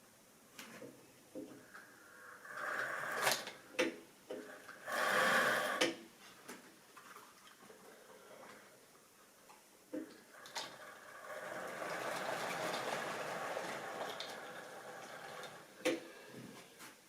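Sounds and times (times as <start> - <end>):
model train wheels rattling: 10.4 - 15.7.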